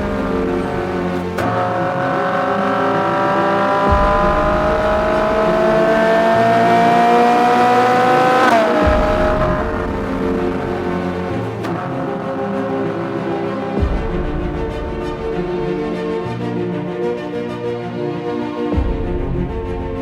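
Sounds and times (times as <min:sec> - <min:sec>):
sports car engine accelerating: 0:00.0 - 0:13.3
background music: 0:00.0 - 0:20.0.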